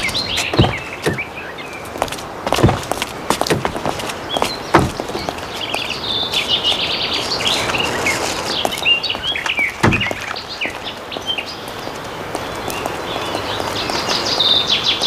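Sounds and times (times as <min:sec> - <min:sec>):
birds chirping: 0:00.0 - 0:15.0
faint outdoor background noise: 0:00.0 - 0:15.0
low thump: 0:00.5 - 0:01.3, 0:02.5 - 0:04.0, 0:04.7 - 0:05.4, 0:09.8 - 0:10.4.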